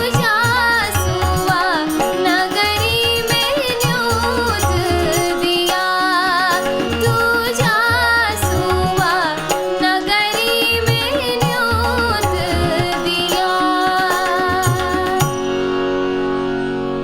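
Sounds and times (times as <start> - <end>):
woman singing wavering melody: 0.0 - 15.7
held instrumental chord: 0.0 - 17.0.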